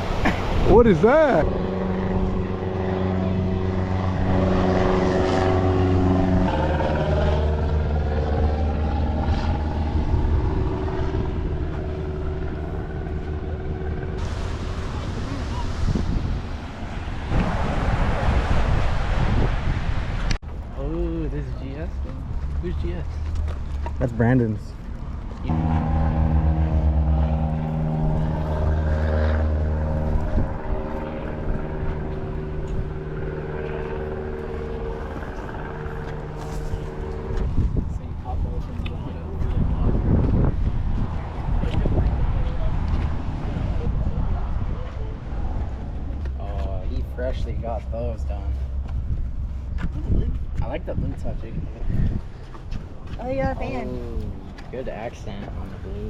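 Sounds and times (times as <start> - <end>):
car engine running: 25.5 - 39.6.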